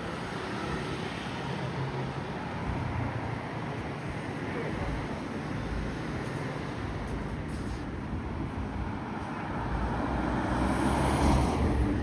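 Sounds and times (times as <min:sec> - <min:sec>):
road traffic noise: 0:00.0 - 0:12.0
vehicle passing close by: 0:10.0 - 0:12.0.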